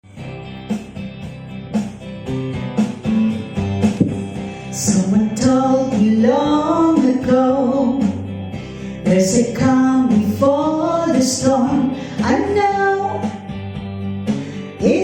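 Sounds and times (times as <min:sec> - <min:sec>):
low bass line: 0:00.0 - 0:14.6
strummed acoustic guitar: 0:00.1 - 0:05.5.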